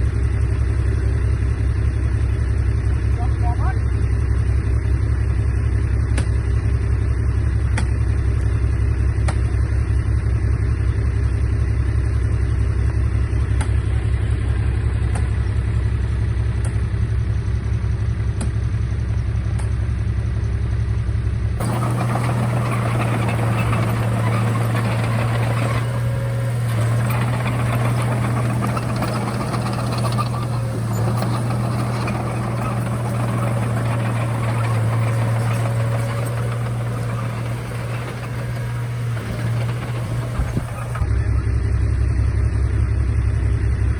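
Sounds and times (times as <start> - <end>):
bulldozer diesel engine running: 21.6 - 41.8.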